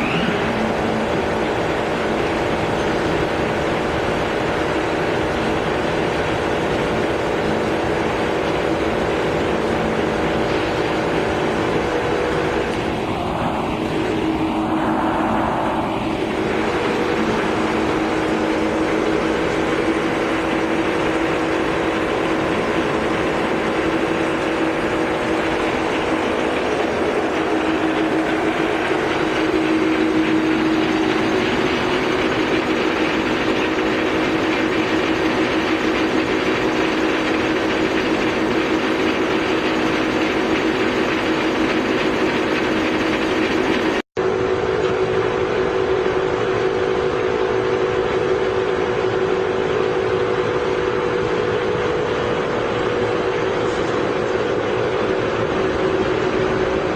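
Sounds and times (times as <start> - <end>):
lathe running: 0.0 - 44.0.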